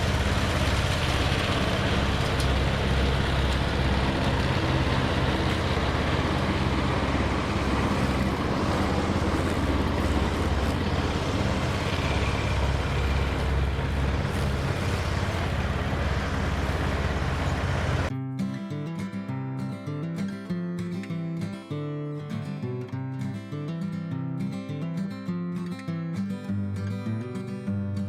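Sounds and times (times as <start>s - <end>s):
engine droning steadily: 0.0s - 18.1s.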